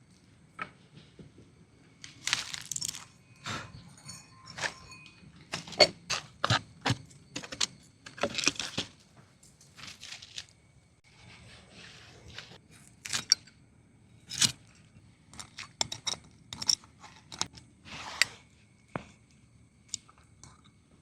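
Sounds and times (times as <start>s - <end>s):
objects knocking and clicking: 0.6s - 10.5s, 15.3s - 17.7s
objects rustling: 2.0s - 13.4s.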